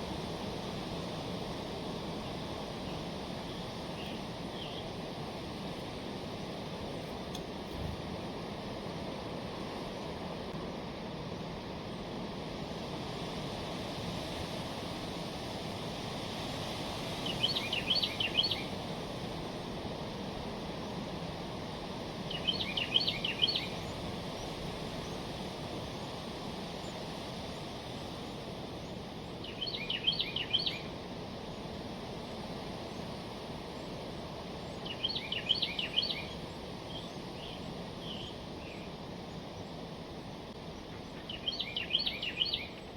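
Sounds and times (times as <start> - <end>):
low outdoor hiss: 0.0 - 42.9
wren singing: 17.2 - 18.8, 22.3 - 25.2, 28.9 - 30.9, 34.6 - 38.9, 40.8 - 42.9.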